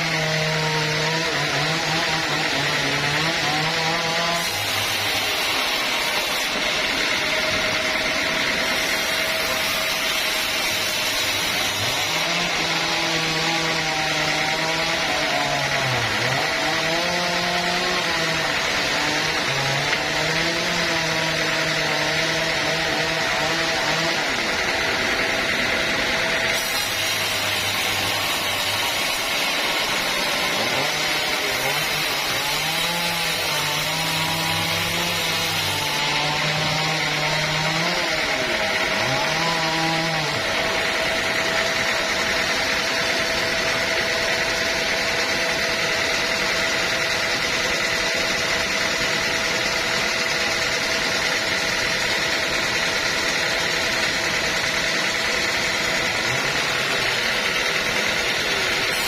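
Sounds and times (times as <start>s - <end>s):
sawmill sawing a log: 0.0s - 59.0s.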